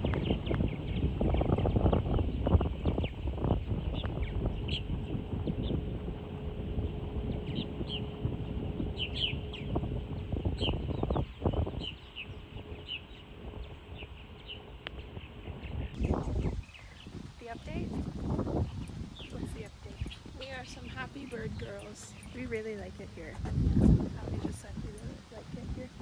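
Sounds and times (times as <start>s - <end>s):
low rumble: 0.0s - 26.0s
small birds chirping: 7.3s - 26.0s.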